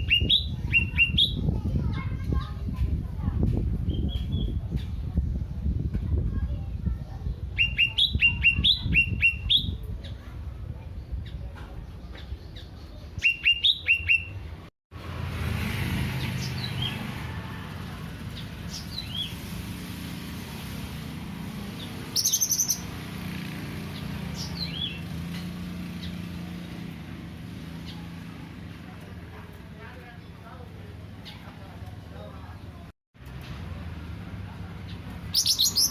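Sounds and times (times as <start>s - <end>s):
songbird chirping: 21.6s - 23.0s
high buzzy bird trill: 21.8s - 23.2s
loud whistled chirps: 22.1s - 22.9s.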